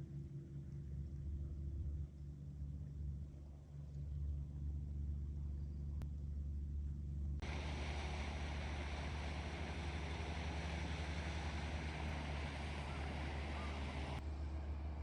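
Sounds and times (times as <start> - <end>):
boat engine droning: 0.0 - 15.0
wind and water rushing: 7.4 - 14.2.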